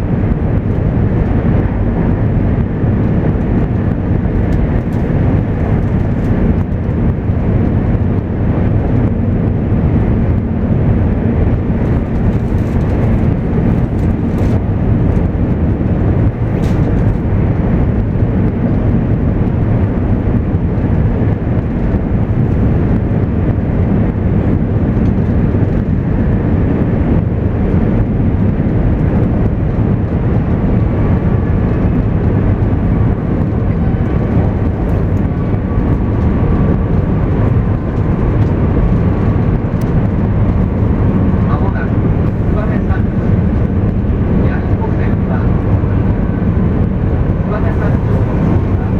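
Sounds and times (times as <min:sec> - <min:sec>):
train wheels rumbling on track: 0:00.0 - 0:48.9
faint whine: 0:28.6 - 0:48.9.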